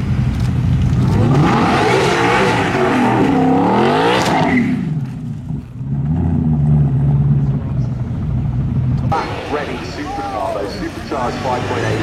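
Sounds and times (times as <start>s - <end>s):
race car passing: 9.1s - 12.0s.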